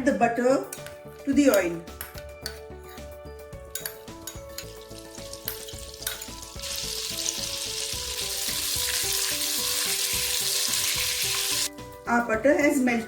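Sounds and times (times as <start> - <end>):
butter sizzling in a frying pan: 4.6 - 11.7.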